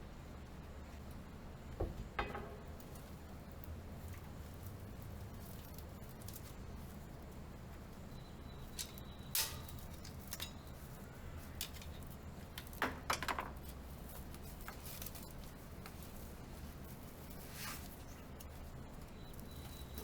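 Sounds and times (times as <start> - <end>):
small metal parts and tools clinking: 8.2 - 16.3.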